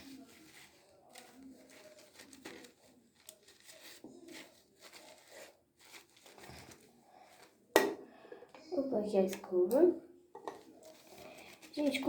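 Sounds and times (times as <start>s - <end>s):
rustling and crinkling hair: 0.0s - 7.7s, 10.5s - 12.0s.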